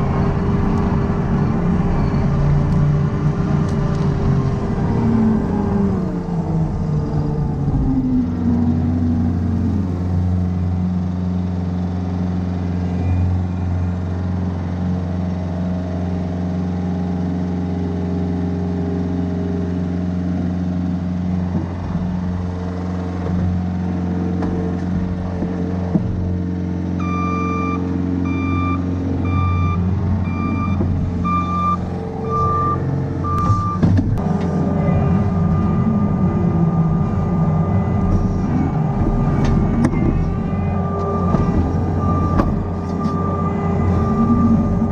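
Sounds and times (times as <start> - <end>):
heavy equipment engine running: 0.0 - 44.9
reversing alarm beeping: 27.0 - 44.9
steady high tone: 27.0 - 44.9.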